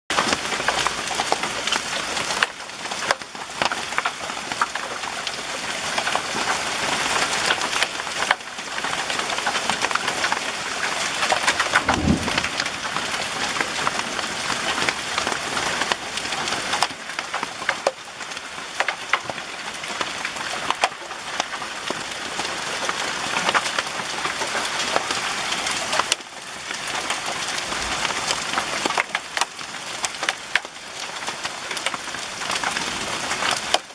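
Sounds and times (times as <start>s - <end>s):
hailstones clattering: 0.1s - 33.9s
low thud: 11.8s - 13.0s.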